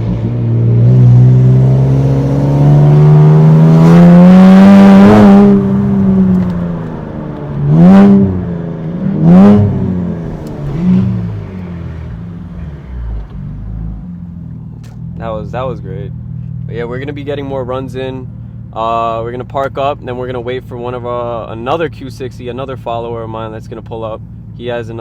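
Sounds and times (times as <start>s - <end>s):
car engine accelerating: 0.0s - 17.7s.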